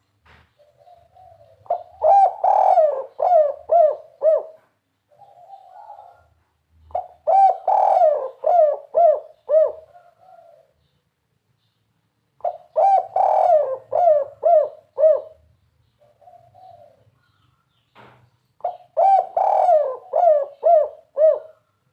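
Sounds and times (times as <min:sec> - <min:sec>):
dove cooing: 0:00.5 - 0:10.8, 0:12.4 - 0:17.3, 0:18.6 - 0:21.8.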